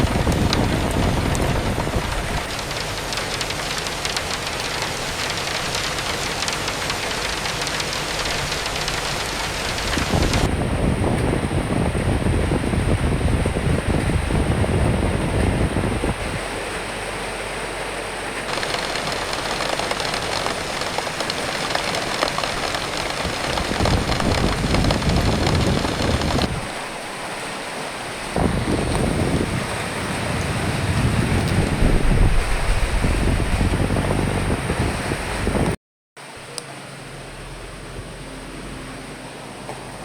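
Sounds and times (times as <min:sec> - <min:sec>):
rain hissing: 0:00.0 - 0:10.5, 0:18.5 - 0:33.4
wind gusting rumble: 0:00.0 - 0:16.5, 0:18.5 - 0:35.8.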